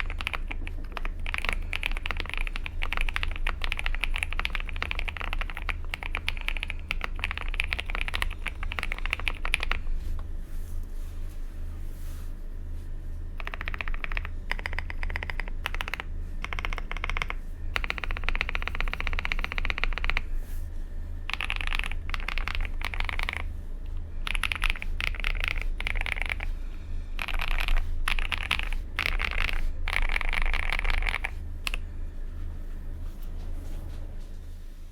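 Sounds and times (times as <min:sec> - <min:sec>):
mechanical keyboard typing: 0:00.0 - 0:09.9, 0:13.4 - 0:20.3, 0:21.3 - 0:23.5, 0:24.2 - 0:26.5, 0:27.2 - 0:31.8
steady low hum: 0:00.0 - 0:34.9.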